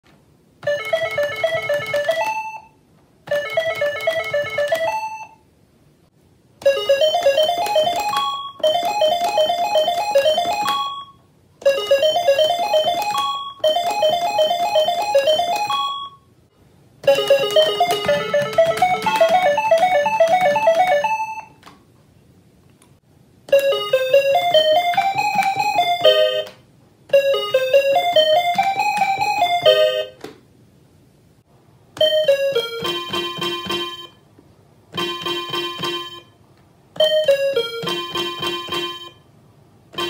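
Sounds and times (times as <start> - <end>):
calculators beeping a melody: 0.6 - 5.4, 6.6 - 16.3, 17.0 - 21.6, 23.5 - 26.5, 27.1 - 30.2, 32.0 - 34.2, 35.0 - 36.4, 37.0 - 39.3.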